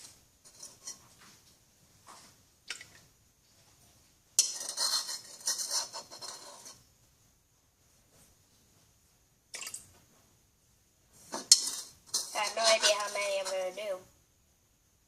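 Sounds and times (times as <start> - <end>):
teaspoon scraping glass bowl: 0.5 - 1.1, 4.4 - 6.8, 11.3 - 13.8.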